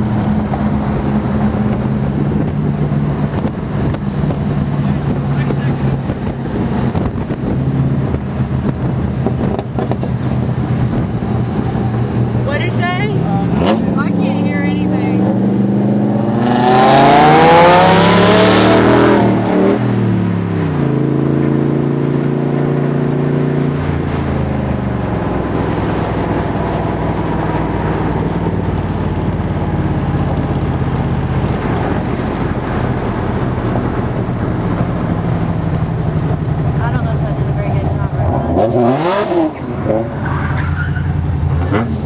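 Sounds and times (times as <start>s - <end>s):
wind rushing: 0.0s - 20.8s
car engine revving: 0.0s - 42.0s.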